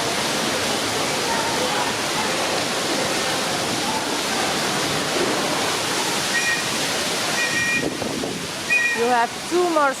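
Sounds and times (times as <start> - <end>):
faint voices: 0.0 - 7.4
running water rushing: 0.0 - 10.0.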